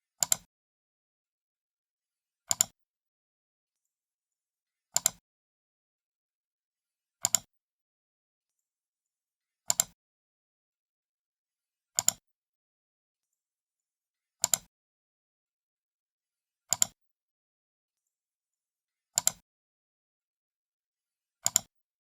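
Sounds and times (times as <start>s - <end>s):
computer mouse button clicking: 0.2s - 0.5s, 2.5s - 2.7s, 7.2s - 7.5s, 14.4s - 14.7s, 16.7s - 17.0s, 19.2s - 19.4s, 21.4s - 21.7s.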